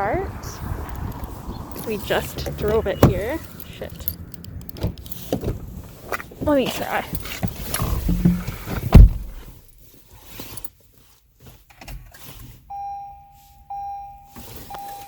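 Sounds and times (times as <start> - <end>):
loud thump: 8.0 - 9.6
car electronic warning tone: 12.7 - 15.0.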